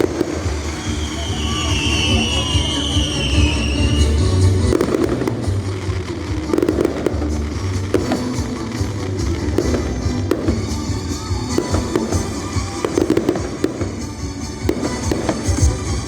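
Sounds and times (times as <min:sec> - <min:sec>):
firework whistle: 0:00.0 - 0:05.3
fireworks bangs and crackling: 0:00.0 - 0:16.0.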